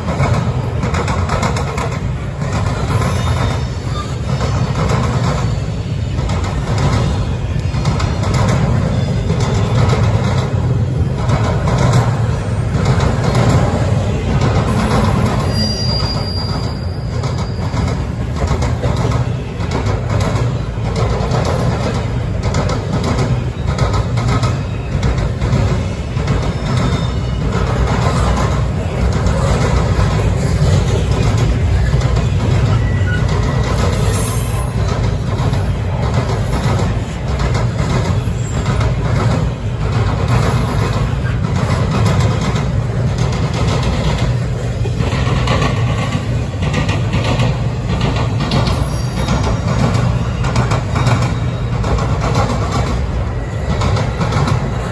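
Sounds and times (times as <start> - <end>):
train wheels rumbling on rails: 0.0 - 54.9
high wheel squeal: 2.8 - 4.8, 14.6 - 18.2, 25.9 - 29.5, 30.3 - 34.8, 48.6 - 51.8.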